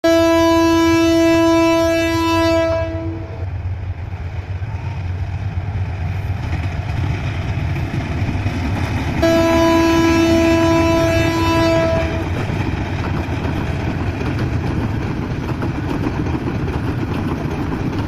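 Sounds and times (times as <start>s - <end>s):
locomotive horn blast: 0.0s - 3.5s, 9.2s - 12.4s
train rumbling: 0.0s - 18.0s.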